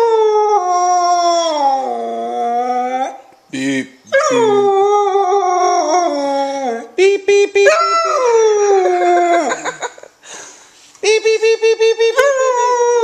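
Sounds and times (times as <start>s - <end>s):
puppy howling: 4.1s - 6.9s, 7.6s - 9.6s.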